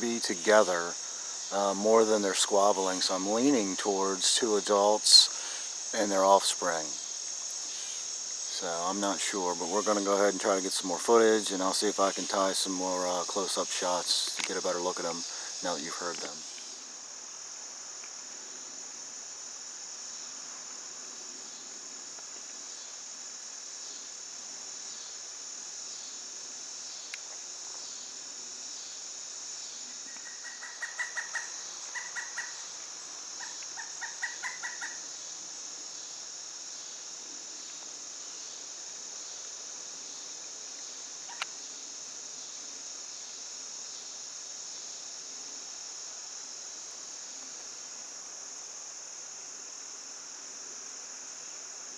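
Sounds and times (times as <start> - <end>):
high insect chorus: 0.0 - 51.9
woodpecker calls: 30.1 - 32.7, 33.4 - 35.1.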